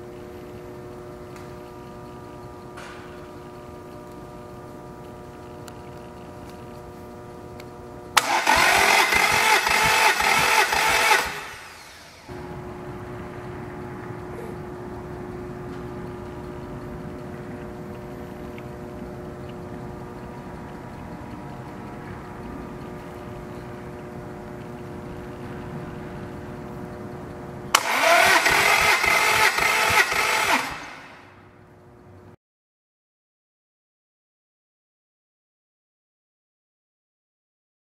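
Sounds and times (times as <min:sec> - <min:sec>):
steady hum: 0:00.0 - 0:32.4
engine cranking by starter motor: 0:08.2 - 0:12.5, 0:27.7 - 0:31.5.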